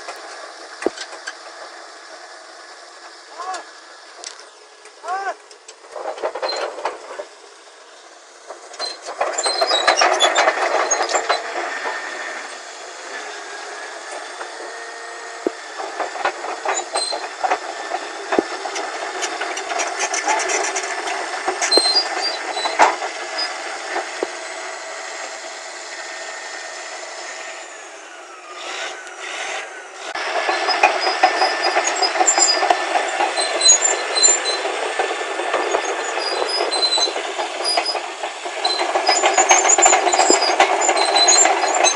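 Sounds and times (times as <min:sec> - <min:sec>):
diesel engine running under load: 0:00.0 - 0:41.9
steel tracks clanking: 0:00.0 - 0:41.9.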